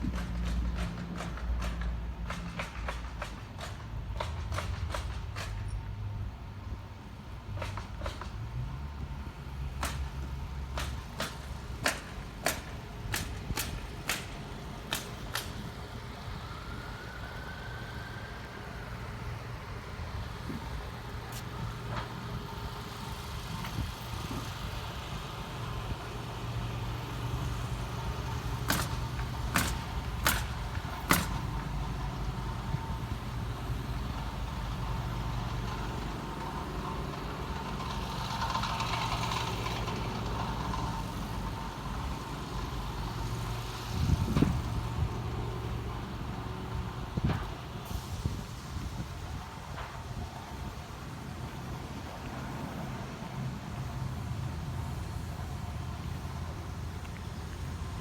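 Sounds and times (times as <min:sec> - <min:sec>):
engine idling: 0:06.5 - 0:51.9
sharp knocks: 0:28.6 - 0:31.5.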